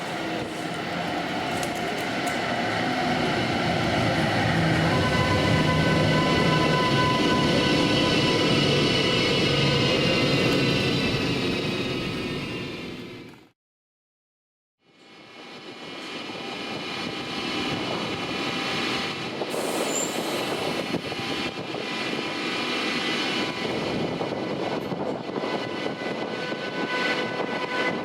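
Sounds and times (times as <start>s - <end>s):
electric locomotive rumble: 0.0s - 13.4s.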